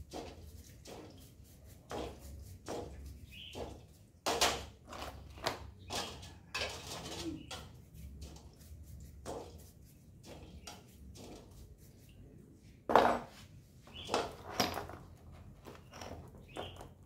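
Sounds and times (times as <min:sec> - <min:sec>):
tools and parts clattering: 0:04.3 - 0:07.7, 0:13.9 - 0:17.0.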